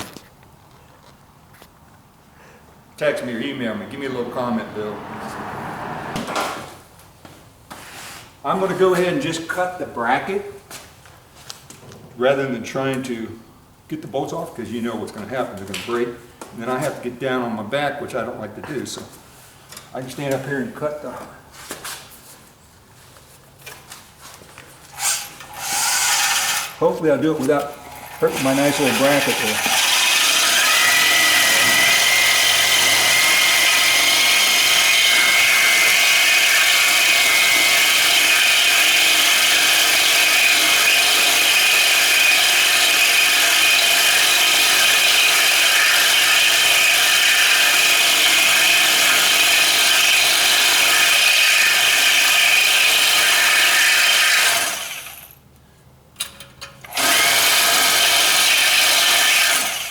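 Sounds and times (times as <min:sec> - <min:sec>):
power tool cutting metal: 0:25.0 - 0:26.8, 0:27.5 - 0:55.3, 0:56.8 - 0:59.9.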